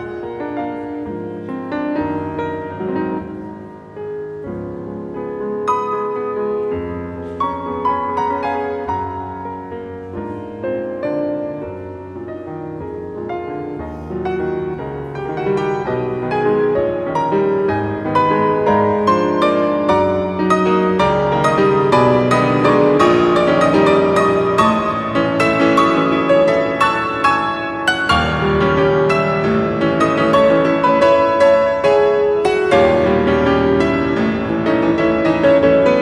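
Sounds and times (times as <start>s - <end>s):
solo classical piano: 0.0s - 36.0s.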